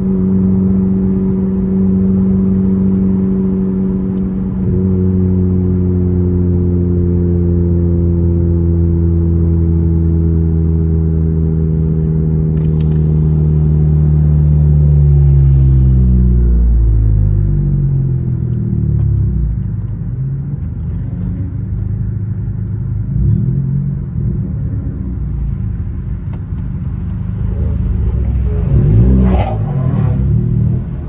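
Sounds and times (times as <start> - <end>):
car engine running: 10.4 - 31.0.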